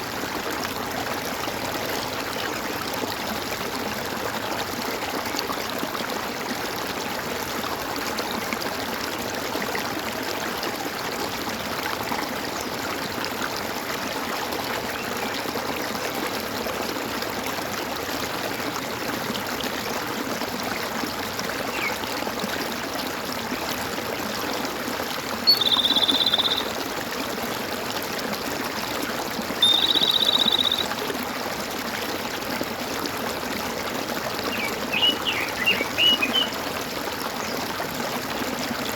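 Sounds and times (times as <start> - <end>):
stream water gurgling: 0.0 - 38.9
animal high trilled calls: 25.5 - 26.7, 29.6 - 31.0, 34.6 - 36.5.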